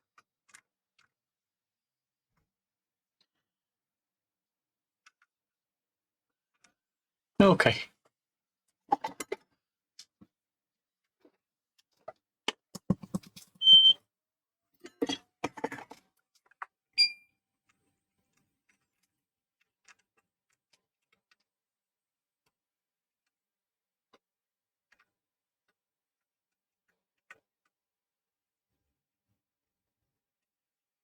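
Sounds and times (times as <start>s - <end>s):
small tools clicking and tapping: 12.5s - 13.6s
short electronic beeps: 13.6s - 14.0s.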